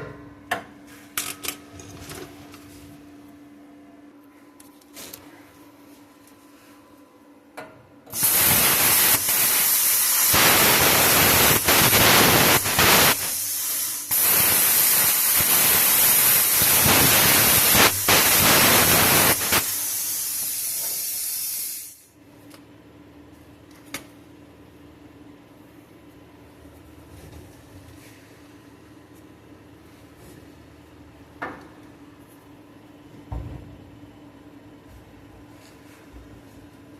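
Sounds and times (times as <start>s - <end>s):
plasma cutter hissing: 8.1s - 22.1s.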